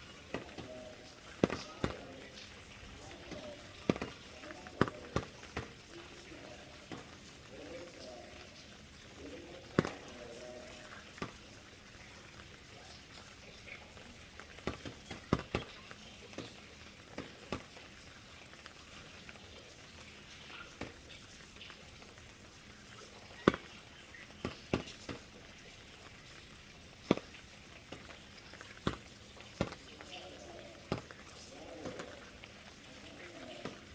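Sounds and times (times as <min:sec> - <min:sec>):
rain hissing: 0:00.0 - 0:33.9
raindrops tapping on a surface: 0:00.0 - 0:33.9.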